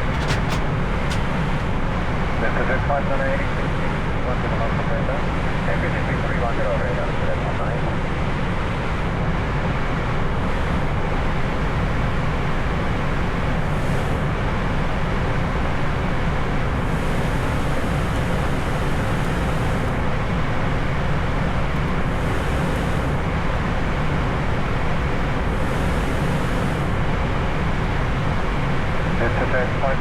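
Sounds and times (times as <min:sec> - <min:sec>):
cockpit airflow and engine noise: 0:00.0 - 0:30.0.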